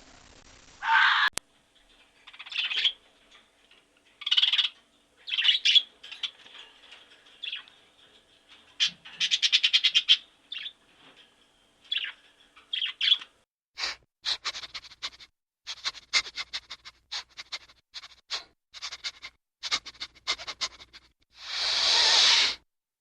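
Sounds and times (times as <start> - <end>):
bird chirping: 2.1 - 3.1, 4.1 - 8.1, 8.7 - 10.8, 11.8 - 13.4
loud hissing burst: 21.4 - 22.6.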